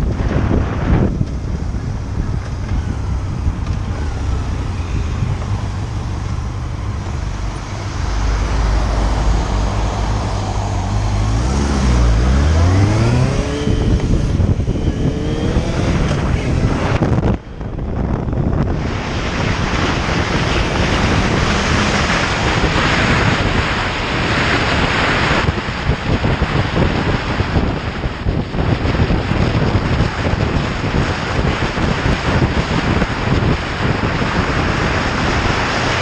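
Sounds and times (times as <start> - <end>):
motorcycle engine: 0.0 - 25.3
wind rushing over microphone: 0.0 - 36.0.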